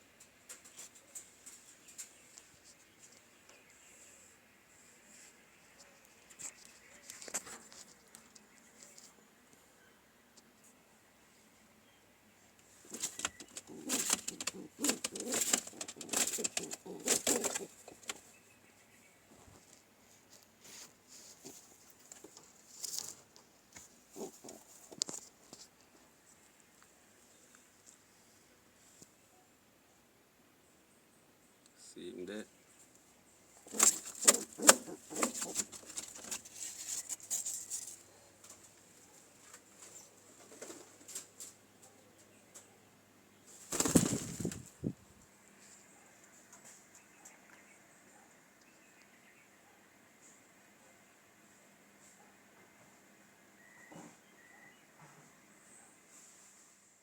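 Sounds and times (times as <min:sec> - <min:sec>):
sharp scuffling: 0:12.9 - 0:18.2, 0:33.7 - 0:37.9
pigeons cooing: 0:12.9 - 0:18.3, 0:24.1 - 0:25.0, 0:33.6 - 0:36.4.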